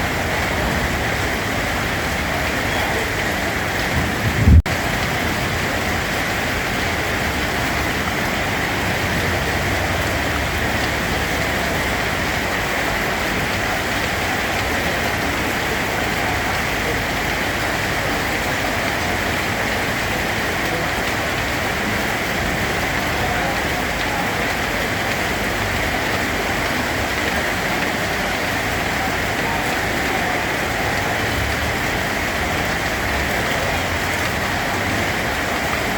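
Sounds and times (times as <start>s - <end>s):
heavy rain falling: 0.0s - 35.9s
low thump: 4.0s - 4.8s.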